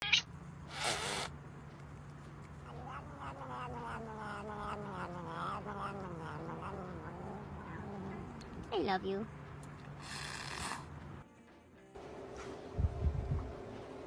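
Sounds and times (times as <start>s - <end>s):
cat yowling: 2.6s - 8.5s
steady low hum: 12.0s - 14.0s.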